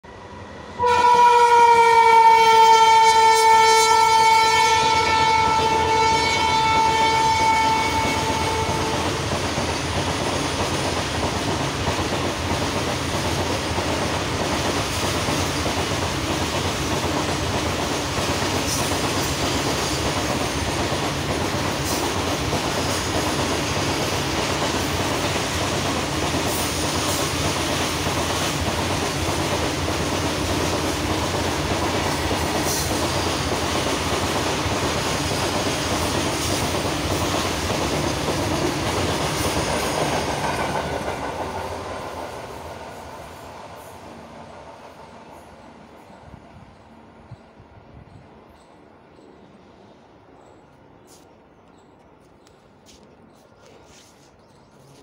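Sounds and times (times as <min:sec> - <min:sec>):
locomotive horn blast: 0:00.8 - 0:09.1.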